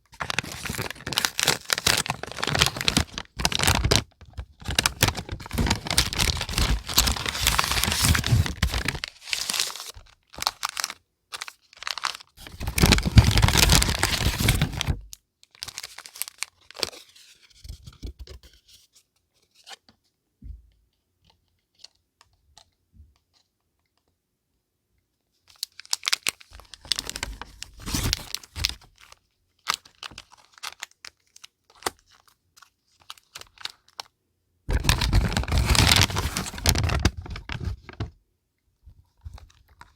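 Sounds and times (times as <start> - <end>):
paper rustling and tearing: 0.2 - 10.9, 11.9 - 15.0, 26.0 - 28.8, 34.7 - 38.1.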